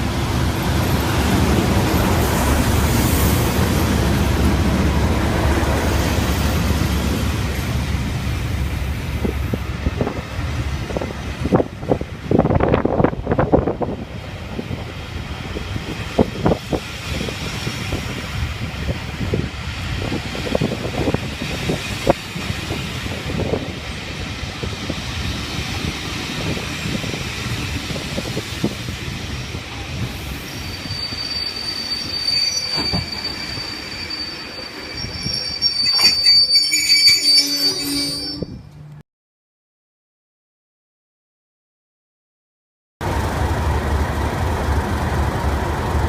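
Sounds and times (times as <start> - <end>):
train rolling along rails: 0.0 - 39.0, 43.0 - 46.0
high wheel squeal: 30.2 - 38.7.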